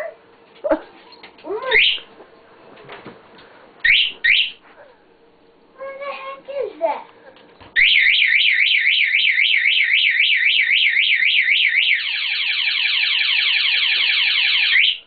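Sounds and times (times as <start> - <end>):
warbling alarm siren: 1.7 - 2.1, 3.8 - 4.6, 7.8 - 15.0.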